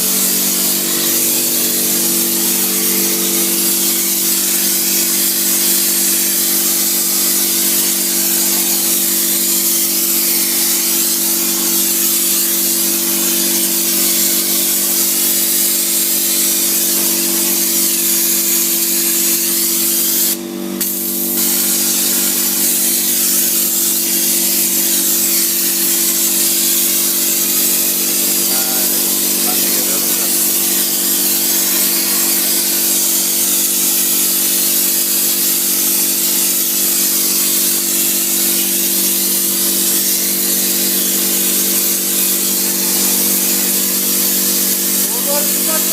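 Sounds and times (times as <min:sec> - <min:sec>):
machine hum: 0:00.0 - 0:03.5, 0:21.2 - 0:33.4
insulation spray hissing: 0:00.0 - 0:45.9.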